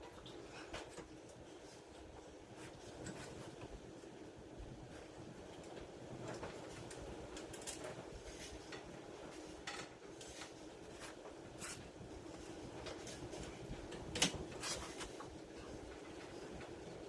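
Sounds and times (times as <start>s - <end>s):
faint background hum: 0.0s - 17.0s.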